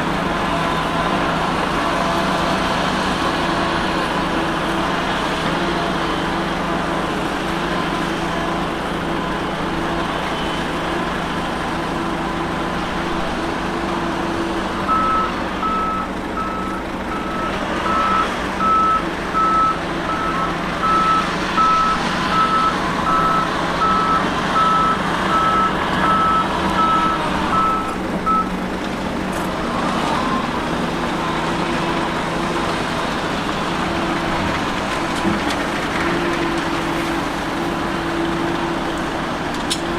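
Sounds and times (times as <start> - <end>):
diesel engine running: 0.0 - 39.9
reversing alarm beeping: 14.8 - 28.5.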